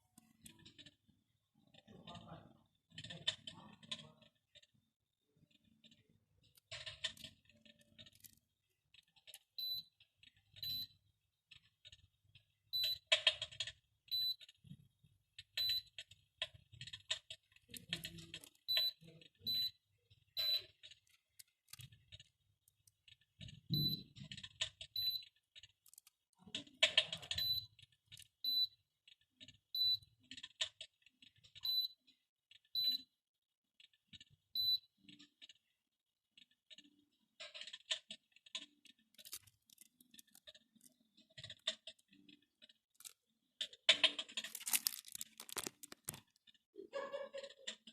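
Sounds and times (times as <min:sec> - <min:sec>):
scattered clicks: 0:15.4 - 0:19.3, 0:20.1 - 0:28.4, 0:36.4 - 0:46.6.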